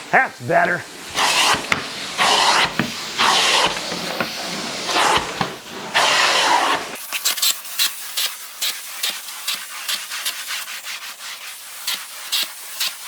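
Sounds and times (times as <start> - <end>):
scratchy rubbing strokes: 0.0 - 7.0
carpet cleaning wand suction: 0.9 - 7.4.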